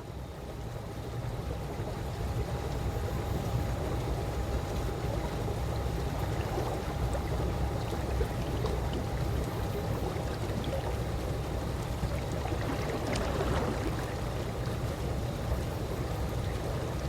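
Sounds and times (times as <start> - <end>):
faint hum: 0.0 - 17.0
pool water lapping: 4.7 - 17.0.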